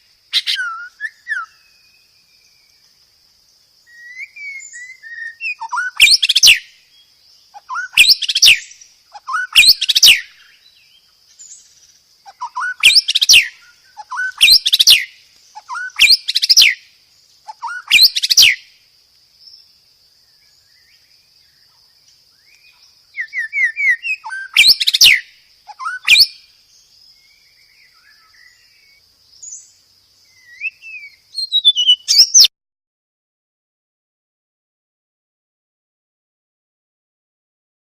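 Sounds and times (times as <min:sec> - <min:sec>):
bird whistling song: 0:00.0 - 0:02.8, 0:03.8 - 0:18.7, 0:22.3 - 0:32.5.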